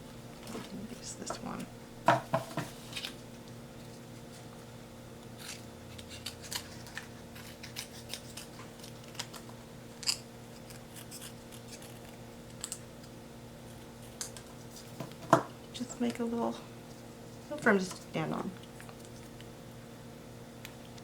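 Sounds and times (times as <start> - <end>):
faint steady hum: 0.0 - 21.0
scissors snipping paper: 5.4 - 12.8.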